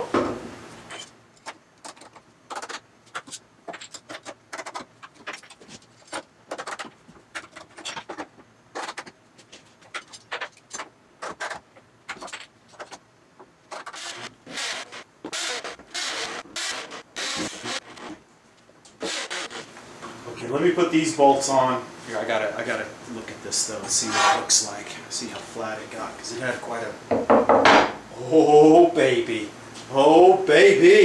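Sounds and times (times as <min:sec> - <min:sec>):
scraping and rubbing: 0:13.7 - 0:18.2, 0:19.0 - 0:19.8, 0:23.7 - 0:24.8.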